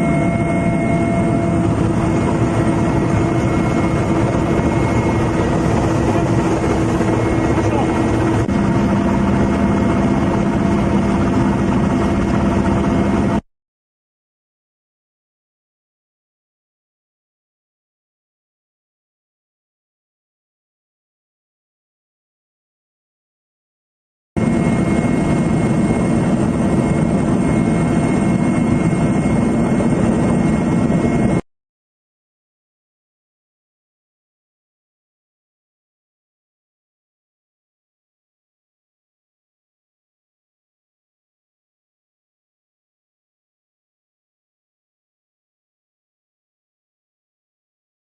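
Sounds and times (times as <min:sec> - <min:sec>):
high whine: 0:00.0 - 0:13.4
loud engine drone: 0:00.0 - 0:13.4.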